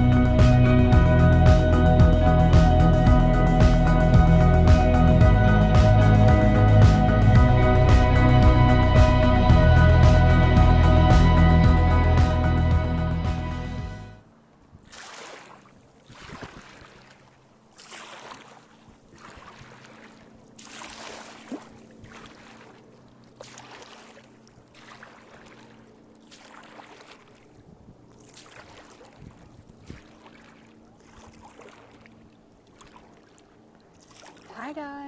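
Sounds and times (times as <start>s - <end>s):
paddle strokes through water: 14.6s - 34.8s.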